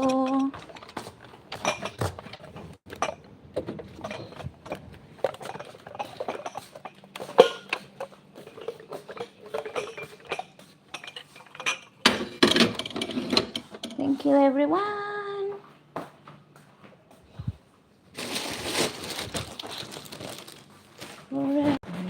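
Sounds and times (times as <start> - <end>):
small hard objects clinking: 18.2 - 21.2.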